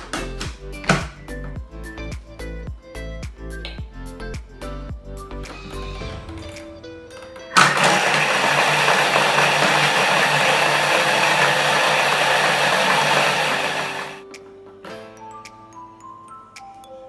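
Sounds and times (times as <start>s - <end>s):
blender crushing ice: 7.6s - 14.2s.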